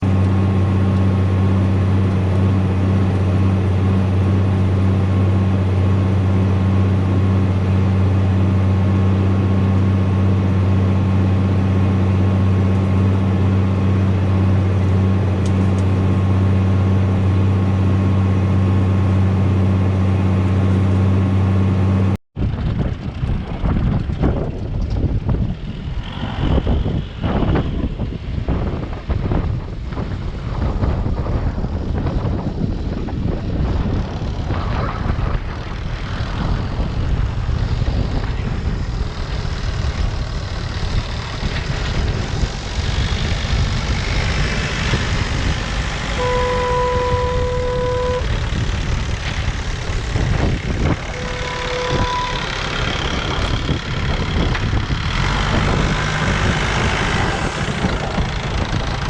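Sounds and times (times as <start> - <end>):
tractor engine running: 0.0 - 59.0
steady warning tone: 45.4 - 49.1, 50.1 - 54.2.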